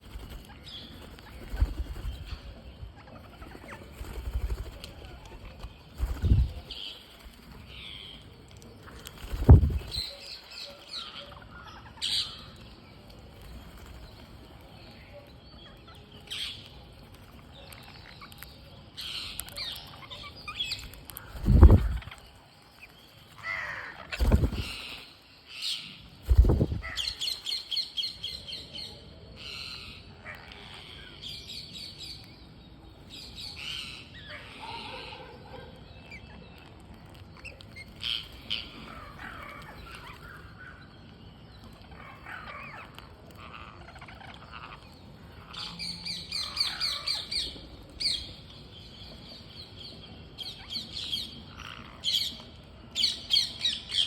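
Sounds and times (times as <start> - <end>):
parrots chirping and squawking: 41.9 - 47.4.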